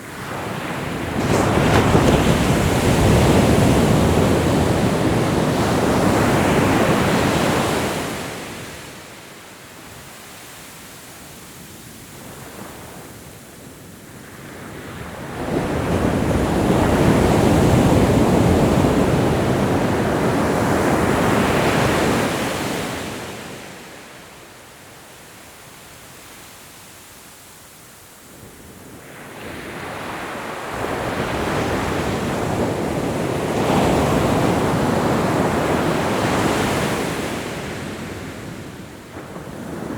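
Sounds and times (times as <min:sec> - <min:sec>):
ocean waves breaking on shore: 0:00.0 - 0:11.0, 0:14.2 - 0:24.1, 0:29.0 - 0:39.9.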